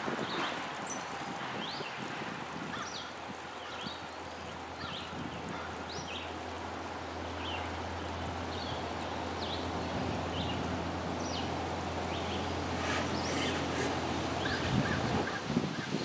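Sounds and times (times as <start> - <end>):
low hum and hiss: 3.2 - 15.2.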